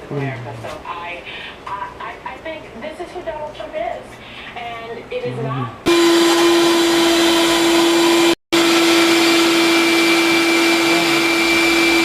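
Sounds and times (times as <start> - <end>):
electric motor whine: 5.9 - 12.0.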